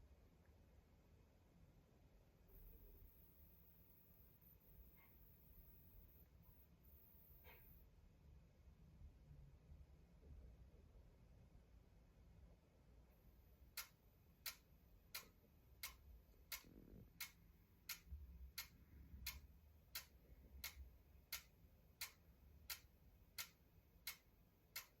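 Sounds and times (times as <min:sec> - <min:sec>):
faint sharp electronic clicks: 0:02.5 - 0:07.8.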